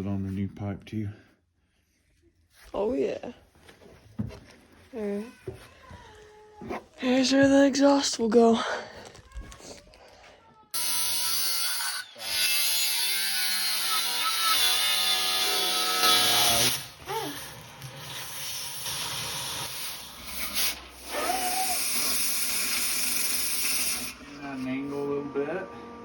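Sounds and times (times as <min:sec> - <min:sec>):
power tool cutting metal pipe: 0:10.8 - 0:26.0.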